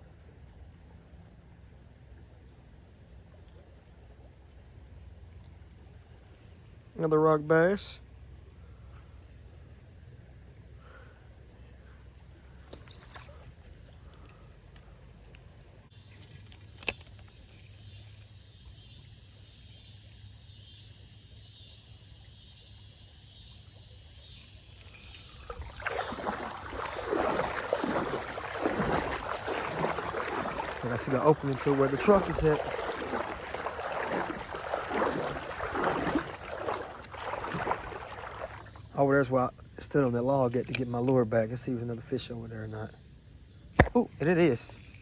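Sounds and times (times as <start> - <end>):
crickets chirping: 0.0 - 45.0
rustling and sloshing: 24.8 - 38.9.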